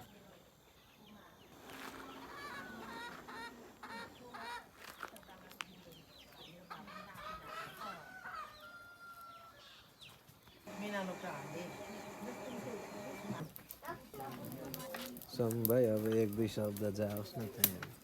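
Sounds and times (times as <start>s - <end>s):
chickens clucking: 1.4s - 9.0s, 9.7s - 14.3s.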